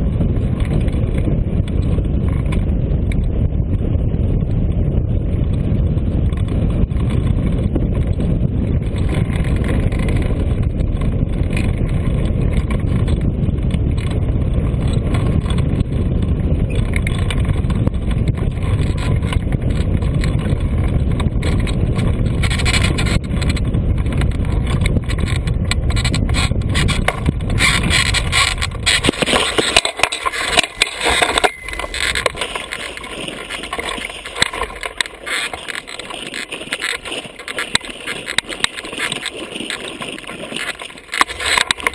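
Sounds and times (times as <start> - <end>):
wind buffeting microphone: 0.0 - 41.9
scraping and clatter: 8.0 - 41.9
sharp knocks and scrapes: 24.6 - 41.9.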